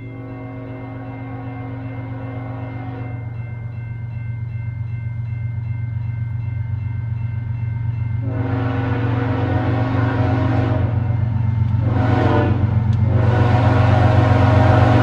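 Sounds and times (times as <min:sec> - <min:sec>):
locomotive horn chord: 0:00.0 - 0:03.4, 0:08.2 - 0:15.0
locomotive engines droning: 0:00.0 - 0:15.0.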